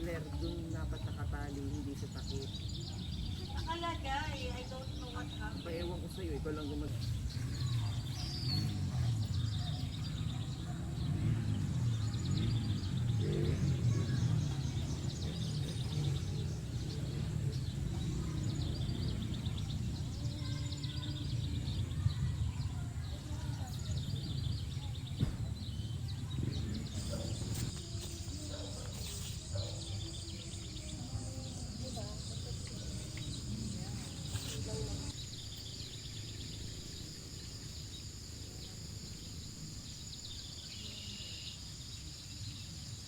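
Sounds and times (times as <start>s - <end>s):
low outdoor rumble: 0.0s - 40.3s
birds chirping: 0.0s - 43.0s.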